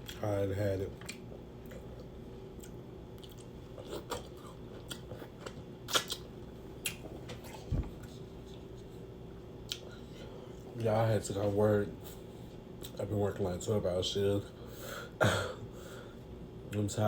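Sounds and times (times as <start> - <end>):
person chewing food: 1.0 - 7.7, 9.6 - 10.3
soft low thump: 7.7 - 8.0.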